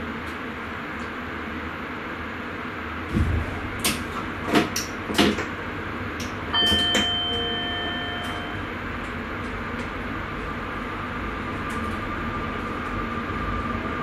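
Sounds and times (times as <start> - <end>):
ringing chime: 6.5 - 8.7.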